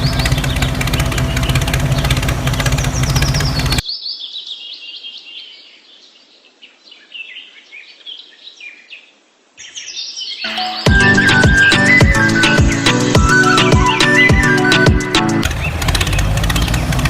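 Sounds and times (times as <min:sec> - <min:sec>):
engine running with low hum: 0:00.0 - 0:03.8, 0:10.9 - 0:17.0
high bird chirps: 0:00.0 - 0:05.6, 0:09.6 - 0:16.8.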